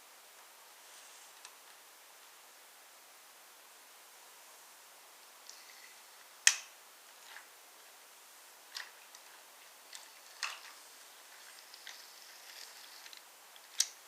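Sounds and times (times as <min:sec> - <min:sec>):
wooden toy trains clicking: 0:08.7 - 0:14.0.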